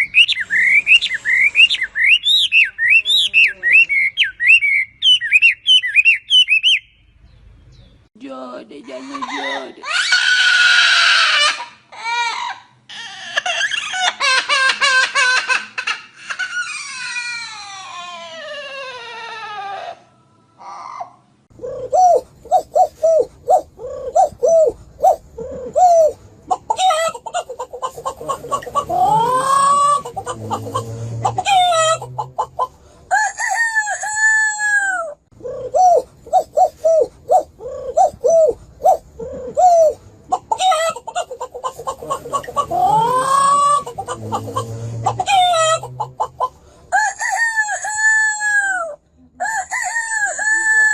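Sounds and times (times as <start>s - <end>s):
chickens calling and crowing: 21.0s - 48.8s.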